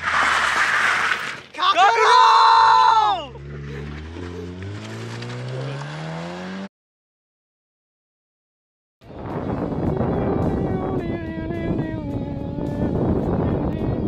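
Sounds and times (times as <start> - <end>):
person whooping shout: 1.6 - 3.4
car engine accelerating: 3.3 - 6.7.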